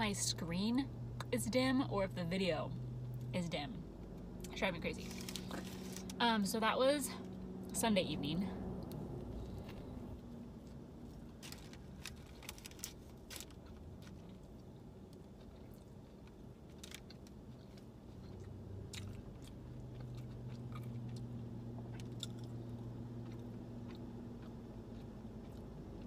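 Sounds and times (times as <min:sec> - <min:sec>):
low steady hum: 0:00.0 - 0:26.0
soft crunches: 0:05.0 - 0:06.2
chewing sandwich: 0:10.6 - 0:26.0.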